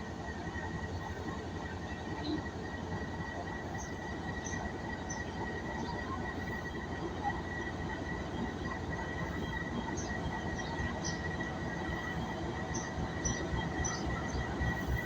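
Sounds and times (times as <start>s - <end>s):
passenger train rolling on rails: 0.0s - 15.0s.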